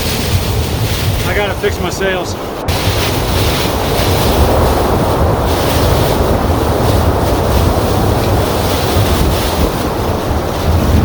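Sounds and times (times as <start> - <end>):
churning harbor water: 0.0 - 11.0
strong wind blasting microphone: 0.0 - 11.0.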